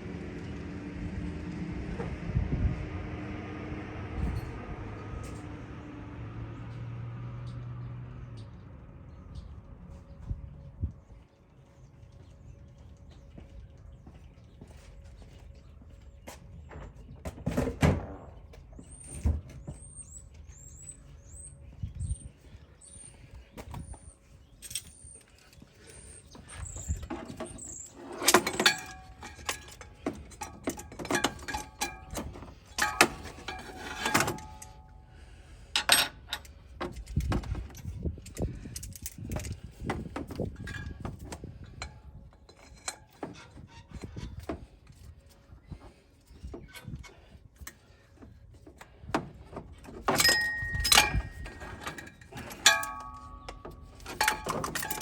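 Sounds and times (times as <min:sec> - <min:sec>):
metal tools clinking and clanking: 0:23.5 - 0:35.1, 0:35.7 - 0:55.0
ringing metal knocks: 0:28.3 - 0:34.9, 0:49.8 - 0:55.0.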